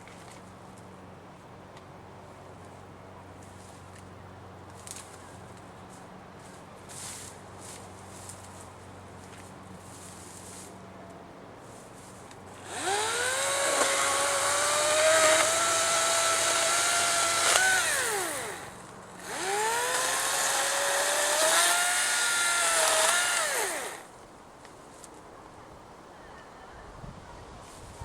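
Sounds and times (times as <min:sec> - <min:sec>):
electric chainsaw whine: 0:12.6 - 0:24.1.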